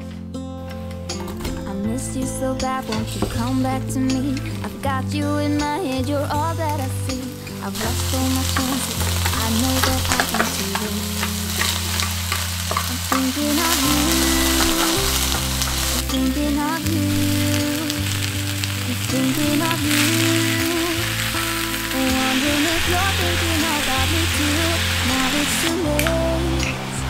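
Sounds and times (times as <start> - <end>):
vegetables sizzling in oil: 7.6 - 27.0.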